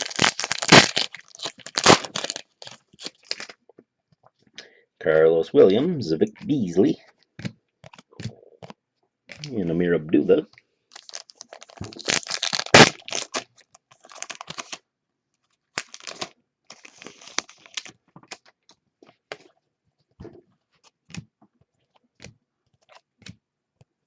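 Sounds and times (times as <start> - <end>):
wrappers crinkling and tearing: 0.0 - 3.6, 10.9 - 14.8, 15.7 - 18.5
cards clicking and rustling: 6.3 - 9.5.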